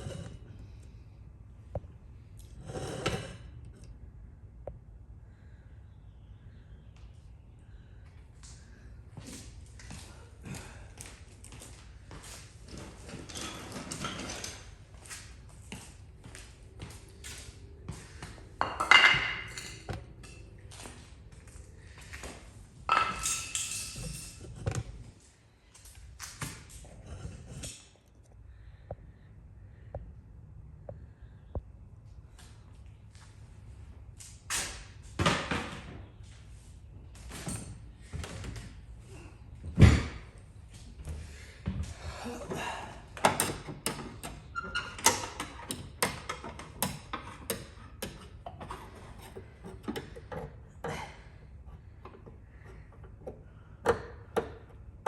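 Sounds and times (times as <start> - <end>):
metal tools clinking: 22.9 - 24.5.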